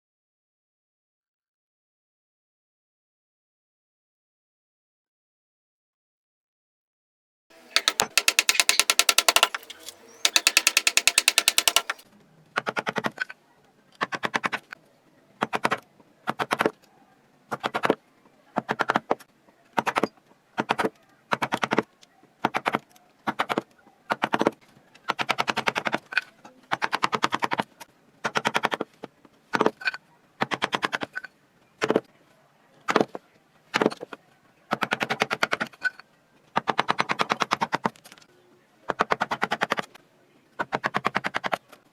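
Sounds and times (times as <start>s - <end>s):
power chisel hammering wood: 7.6s - 12.0s.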